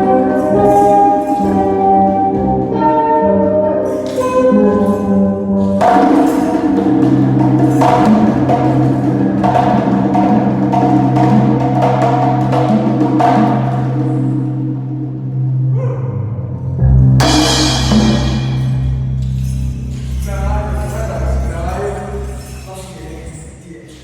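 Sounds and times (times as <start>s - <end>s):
wood block percussion hits: 0.0s - 2.0s, 3.9s - 14.6s, 17.2s - 23.6s
held pitched notes: 0.0s - 24.0s.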